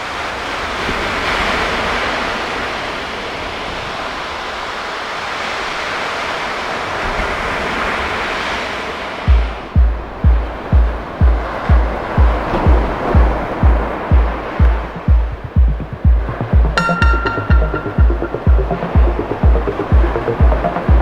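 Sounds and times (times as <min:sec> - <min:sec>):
music with deep bass drum beat: 0:09.3 - 0:21.0.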